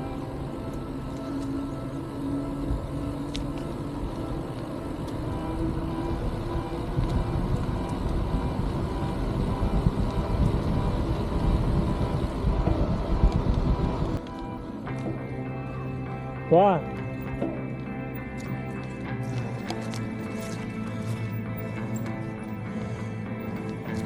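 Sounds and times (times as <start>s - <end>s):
wind buffeting microphone: 4.4s - 14.2s.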